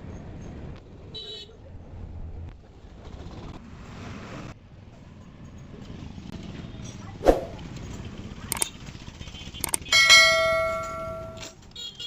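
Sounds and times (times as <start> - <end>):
background traffic noise: 0.0 - 12.0
hand tool clicks: 9.6 - 11.5
hand tool knock: 10.0 - 11.5.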